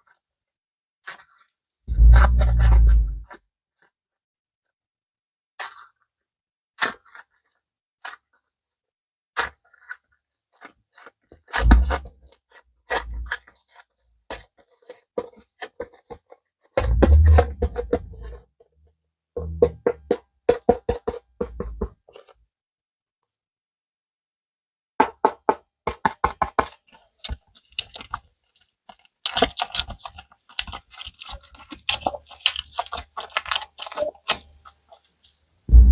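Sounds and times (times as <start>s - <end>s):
clay and packaging handling: 27.2s - 35.5s.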